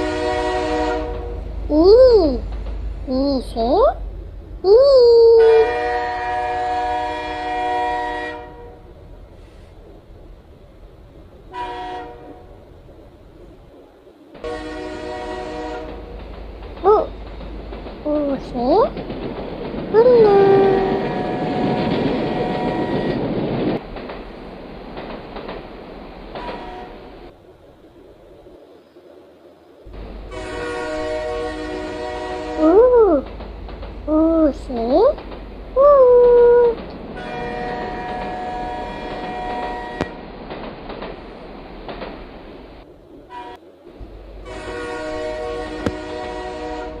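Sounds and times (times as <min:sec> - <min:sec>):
train horn blasts: 0:00.0 - 0:01.6, 0:05.4 - 0:08.9, 0:11.5 - 0:12.6, 0:14.4 - 0:16.2, 0:20.2 - 0:23.2, 0:26.4 - 0:27.1, 0:30.3 - 0:32.9, 0:37.2 - 0:40.2, 0:43.3 - 0:43.7, 0:44.4 - 0:47.0
rail clatter: 0:00.0 - 0:04.6, 0:05.6 - 0:28.2, 0:29.9 - 0:46.7
train rumble and clickety-clack: 0:00.0 - 0:47.0.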